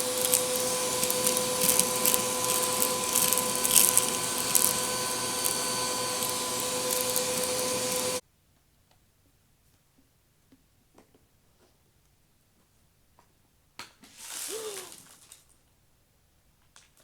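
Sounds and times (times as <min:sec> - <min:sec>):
rocks rattling in vacuum: 0:00.0 - 0:08.2
vacuum cleaner motor whine: 0:00.0 - 0:08.2, 0:14.5 - 0:15.0.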